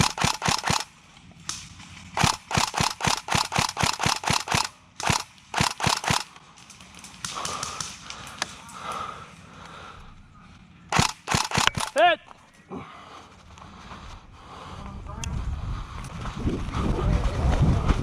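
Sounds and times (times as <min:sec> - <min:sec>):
airsoft gun shots: 0:00.0 - 0:00.9, 0:02.2 - 0:06.3, 0:10.9 - 0:12.0
faint scattered shots: 0:00.0 - 0:08.6, 0:10.9 - 0:12.1.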